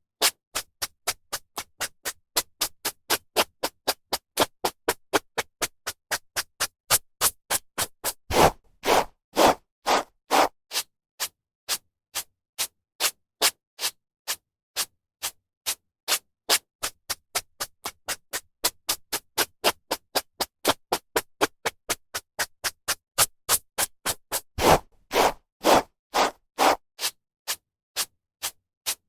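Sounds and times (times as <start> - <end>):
hairbrush swishing through hair: 8.3 - 10.5, 24.6 - 26.8.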